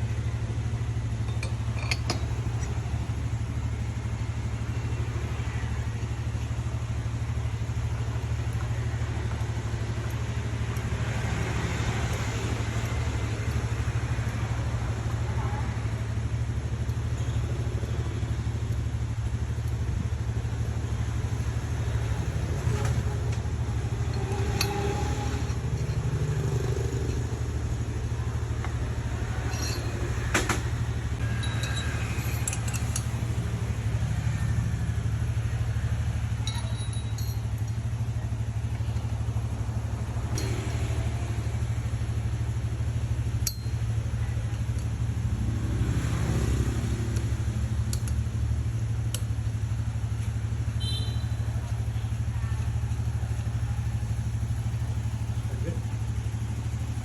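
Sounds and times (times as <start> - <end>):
sharp clicks and clinks: 1.2 - 2.8, 28.6 - 33.2, 36.4 - 37.8, 43.4 - 44.9.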